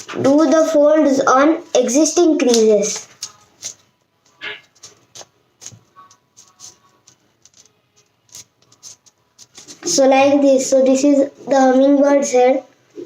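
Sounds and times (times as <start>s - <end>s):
paper being folded and creased: 4.6s - 9.9s.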